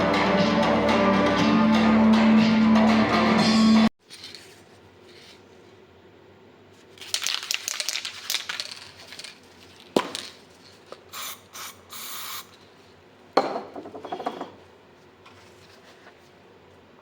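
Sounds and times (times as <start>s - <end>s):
spray can ball rattling: 7.0s - 12.6s
aerosol spray hissing: 11.1s - 12.5s.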